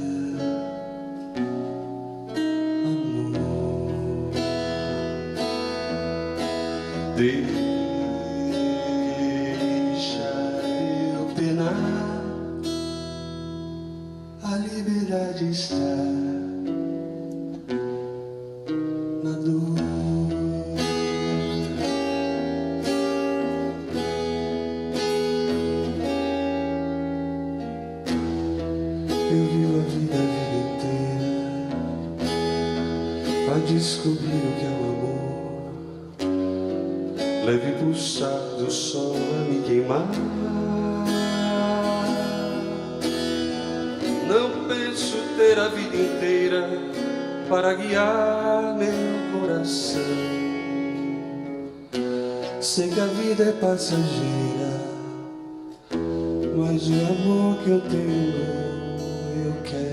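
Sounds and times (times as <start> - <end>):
person singing: 0.0 - 13.6, 18.7 - 24.1, 28.5 - 59.9
plucked chords ringing: 15.2 - 59.9.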